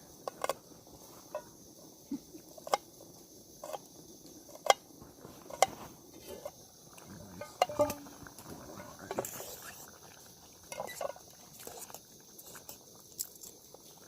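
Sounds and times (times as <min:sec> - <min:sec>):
faint high hiss: 0:00.0 - 0:14.0
campfire crackling and popping: 0:06.4 - 0:14.0.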